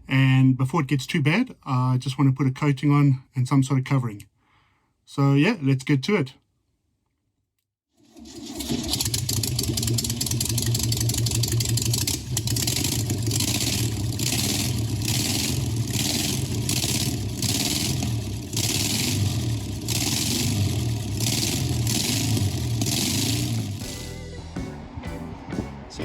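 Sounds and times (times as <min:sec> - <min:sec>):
vehicle engine running: 0:08.5 - 0:26.0.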